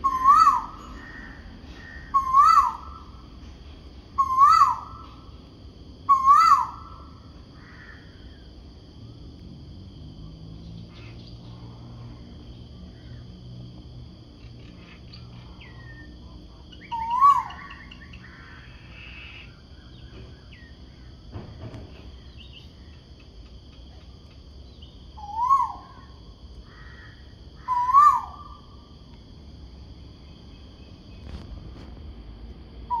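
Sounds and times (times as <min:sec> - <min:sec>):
bird giving ku-oo call: 0:00.0 - 0:03.2, 0:04.2 - 0:05.3, 0:06.1 - 0:08.0, 0:16.8 - 0:19.6, 0:25.2 - 0:28.7
steady high-pitched whine: 0:00.0 - 0:33.0
small birds chirping: 0:14.3 - 0:21.2, 0:22.0 - 0:26.9.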